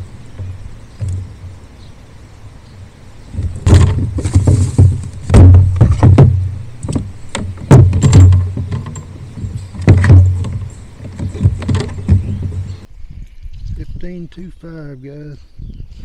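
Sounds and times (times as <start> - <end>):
knocks and bumps on kayak hull: 3.4 - 12.8.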